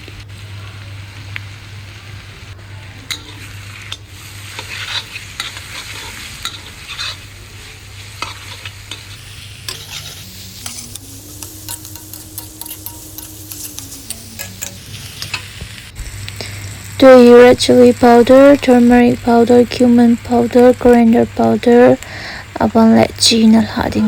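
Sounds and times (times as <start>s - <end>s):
food sizzling in oil: 0.0s - 24.0s
spatula scraping pan: 4.5s - 7.3s, 8.2s - 15.6s.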